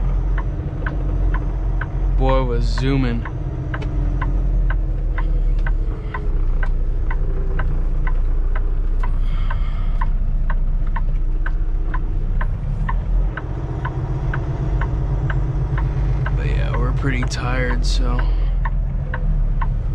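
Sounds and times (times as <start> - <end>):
diesel engine idling: 0.0 - 19.9
sharp ticking: 0.0 - 19.9.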